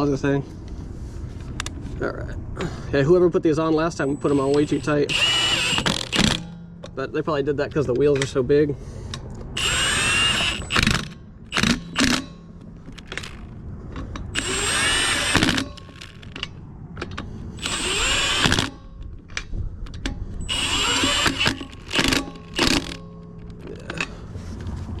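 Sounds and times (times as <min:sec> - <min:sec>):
impact wrench whining: 0:04.0 - 0:07.0, 0:09.5 - 0:19.3, 0:19.9 - 0:24.1.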